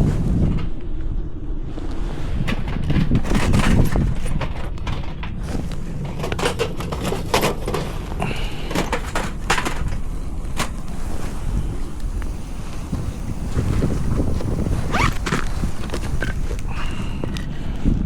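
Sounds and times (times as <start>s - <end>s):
wind buffeting microphone: 0.0s - 18.0s
sharp clicks and knocks: 2.5s - 10.9s.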